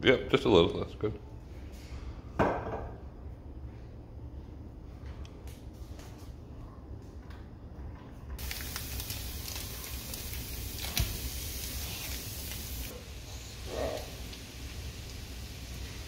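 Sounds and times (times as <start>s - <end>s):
onion and garlic sizzling in oil: 8.4s - 16.0s.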